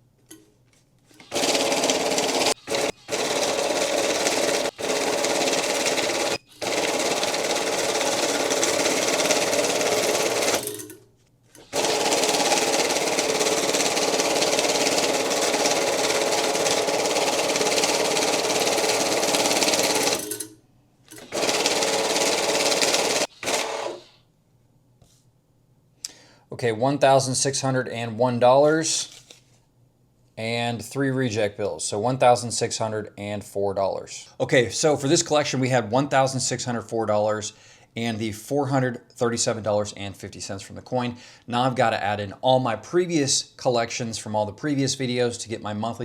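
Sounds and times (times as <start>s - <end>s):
banknote counting machine flutter: 1.2s - 11.0s, 11.6s - 20.5s, 21.1s - 24.1s.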